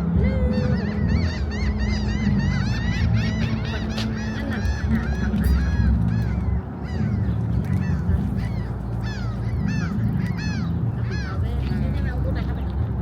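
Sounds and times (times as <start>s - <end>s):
flock of birds honking: 0.0s - 12.6s
steady low rumble: 0.0s - 13.0s.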